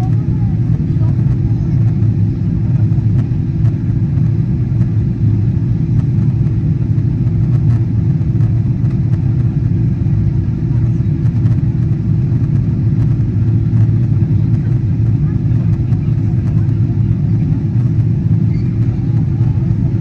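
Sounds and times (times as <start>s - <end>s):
airplane cabin engine rumble: 0.0s - 20.0s
constant hum: 0.0s - 20.0s.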